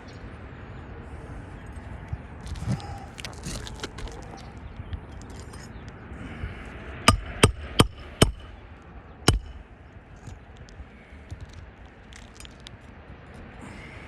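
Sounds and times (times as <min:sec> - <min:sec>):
hammer blows on metal: 0:07.0 - 0:08.6, 0:09.3 - 0:09.6.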